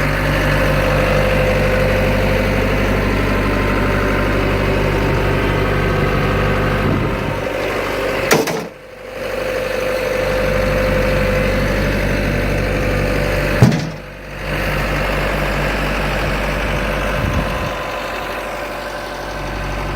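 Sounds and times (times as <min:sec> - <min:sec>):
telehandler engine idling: 0:00.0 - 0:19.9
sharp knocks: 0:08.3 - 0:08.8, 0:13.6 - 0:14.1.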